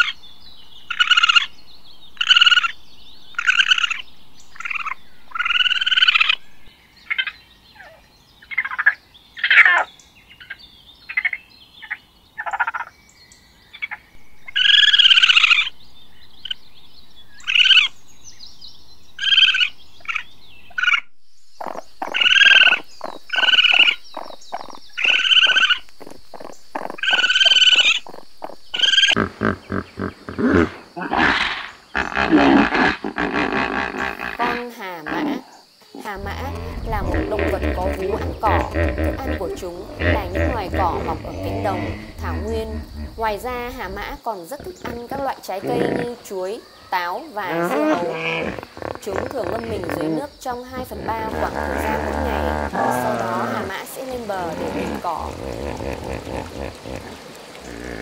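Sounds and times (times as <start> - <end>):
raccoons chittering: 21.6 - 58.0
raccoons rattling trills: 21.6 - 58.0.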